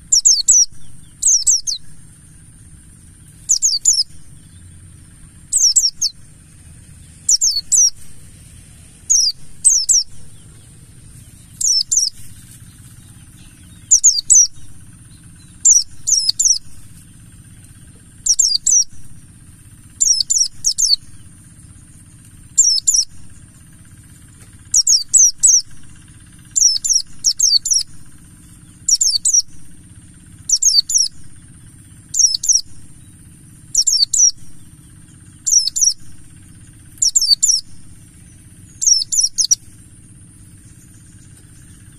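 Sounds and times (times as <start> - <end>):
steady high hiss: 0.0 - 21.3
white-eye bird chirping: 0.0 - 41.9.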